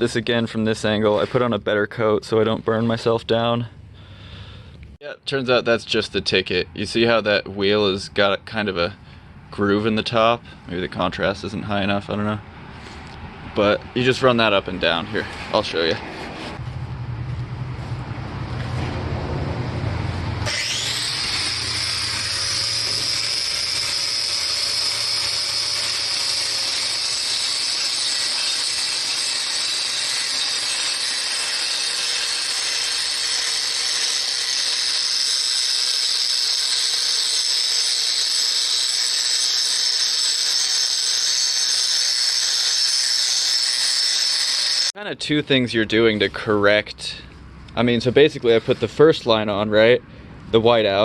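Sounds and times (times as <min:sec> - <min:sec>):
grinding wheel grinding pipe: 0:20.0 - 0:45.0.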